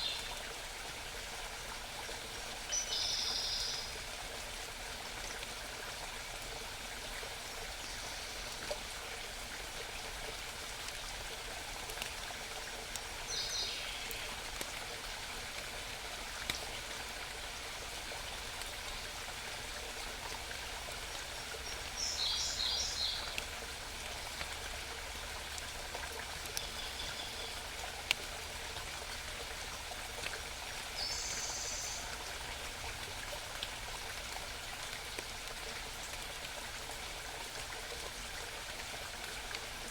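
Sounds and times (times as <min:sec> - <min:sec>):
mountain stream babbling: 0:00.0 - 0:39.9
songbird singing: 0:02.7 - 0:03.9, 0:21.6 - 0:23.4, 0:26.6 - 0:27.6, 0:31.0 - 0:32.1.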